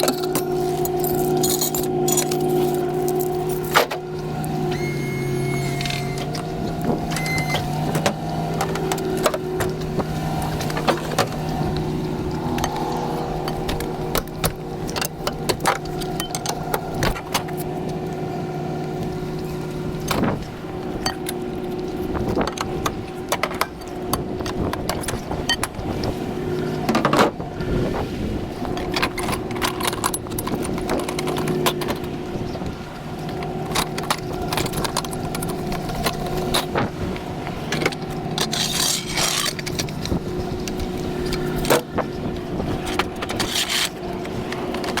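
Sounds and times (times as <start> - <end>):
metallic clinks and rattles: 0.0 - 3.8
vehicle engine running: 0.0 - 45.0.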